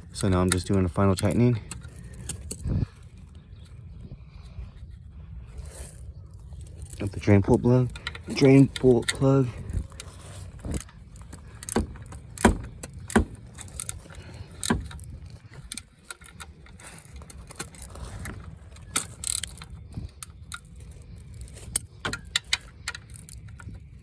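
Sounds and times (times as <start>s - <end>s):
wrench clicking on metal: 6.8s - 17.9s, 18.8s - 23.9s.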